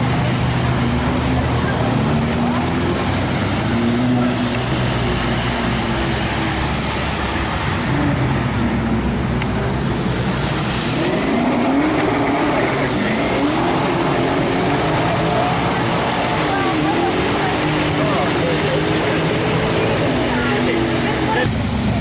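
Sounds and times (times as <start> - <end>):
car engine revving: 0.0 - 22.0
steady background noise: 0.0 - 22.0.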